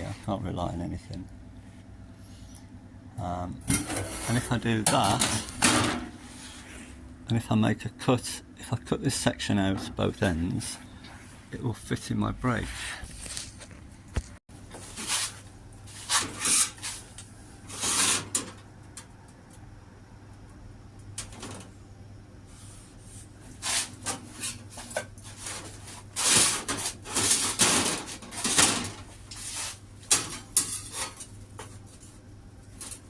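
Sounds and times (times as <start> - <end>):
scraping and rubbing on metal: 3.7 - 5.5, 14.8 - 17.0, 17.7 - 18.4, 22.5 - 32.2.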